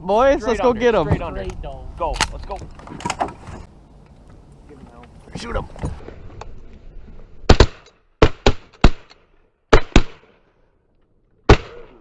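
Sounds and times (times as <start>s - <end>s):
shotgun shots: 7.5s - 10.4s, 11.5s - 12.0s.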